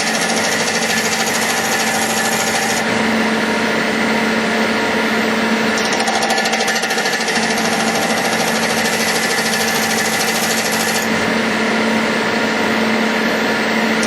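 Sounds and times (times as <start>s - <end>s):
high rattle of metal cutting: 0.0s - 3.2s, 5.8s - 11.2s
lathe machine hum: 0.0s - 14.0s.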